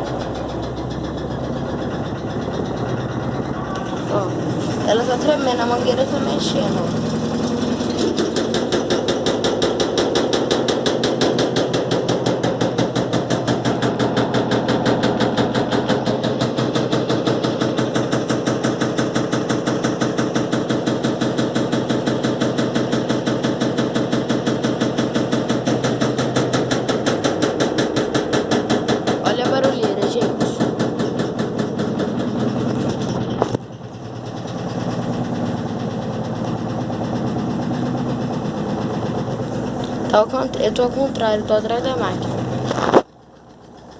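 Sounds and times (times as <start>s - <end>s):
washing machine spinning and knocking: 0.0s - 43.9s.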